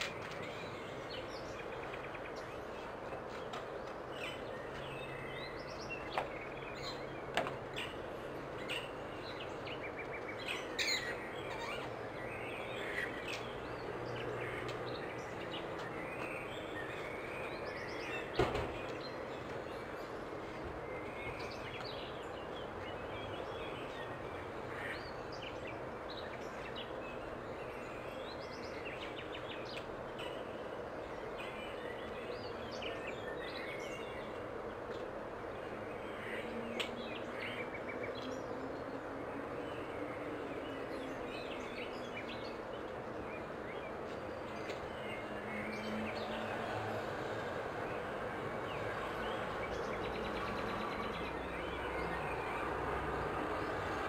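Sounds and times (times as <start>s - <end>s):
outdoor background noise: 0.0s - 54.0s
bird chirps and calls: 8.6s - 11.9s.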